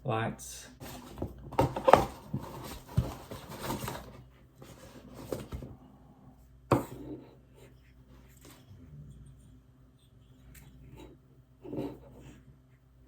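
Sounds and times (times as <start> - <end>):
packaging rustling: 0.8 - 5.7.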